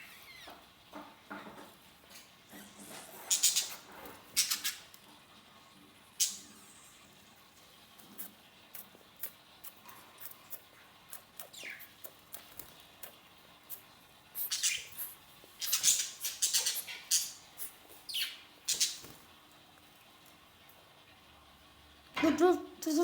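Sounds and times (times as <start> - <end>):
lovebirds chirping: 2.4 - 5.0, 10.2 - 19.2.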